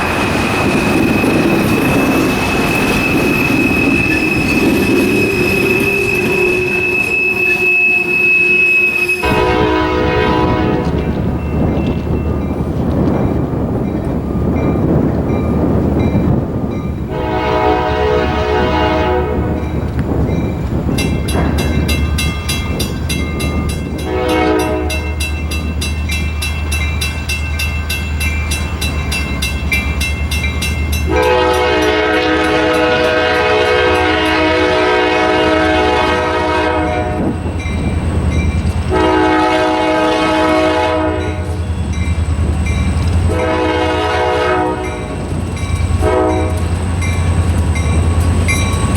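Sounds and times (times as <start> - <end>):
locomotive engine rumbling: 0.0 - 48.9
ringing bell: 0.5 - 9.4, 24.7 - 31.1
train air horn blasts: 3.8 - 11.3, 17.1 - 19.6, 24.0 - 25.2, 31.1 - 37.4, 38.9 - 41.6, 43.3 - 45.2, 46.0 - 46.7.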